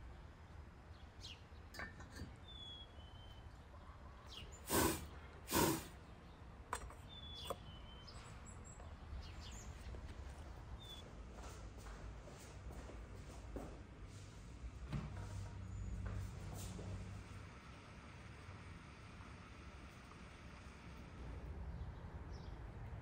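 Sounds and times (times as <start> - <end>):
small birds chirping: 0.9 - 11.5, 20.6 - 23.0.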